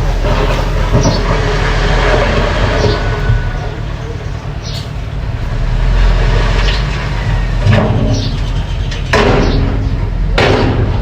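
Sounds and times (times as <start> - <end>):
knocks and scrapes: 0.0 - 3.9
bulldozer engine running: 0.0 - 11.0.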